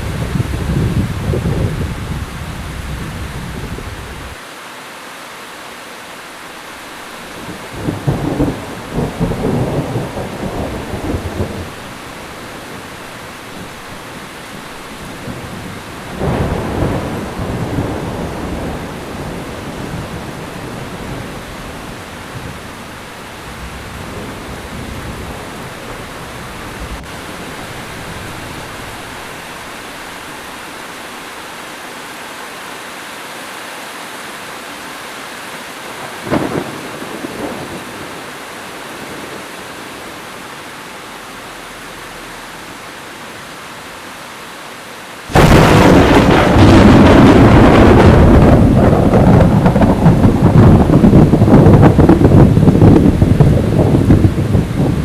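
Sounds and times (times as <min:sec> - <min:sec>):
thunder rumbling: 0:00.0 - 0:04.4, 0:06.9 - 0:31.3, 0:36.0 - 0:40.2, 0:45.3 - 0:55.0
heavy rain falling: 0:00.0 - 0:55.0.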